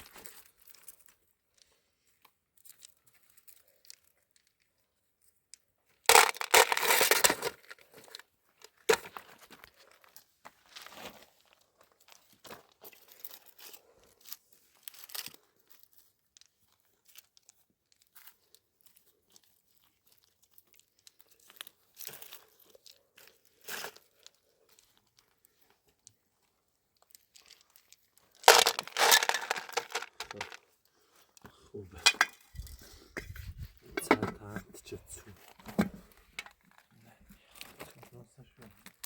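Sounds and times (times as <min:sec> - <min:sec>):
crunching and rustling: 0:06.1 - 0:34.2
crinkling and tearing rustles: 0:06.3 - 0:31.4.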